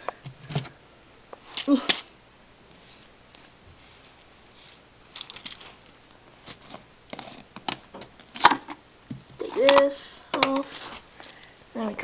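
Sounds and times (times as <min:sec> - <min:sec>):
light clicks taps and crinkles: 0:05.0 - 0:11.6.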